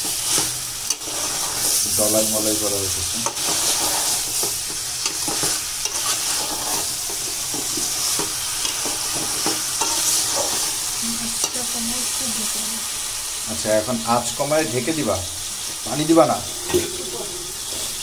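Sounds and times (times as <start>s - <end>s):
metal spatula scraping pot: 0.0s - 1.8s, 3.2s - 10.8s
chicken sizzling in pot: 0.0s - 18.0s.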